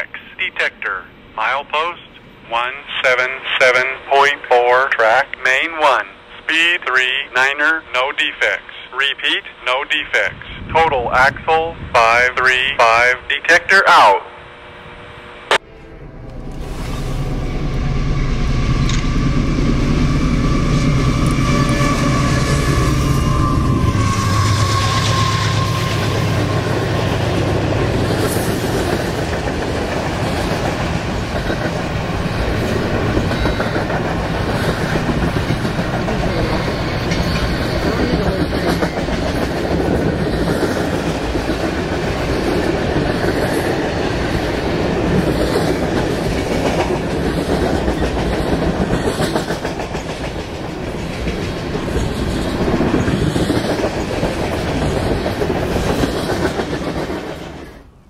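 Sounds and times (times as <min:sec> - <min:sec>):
train wheels rumbling and clacking: 0:16.2 - 0:57.9.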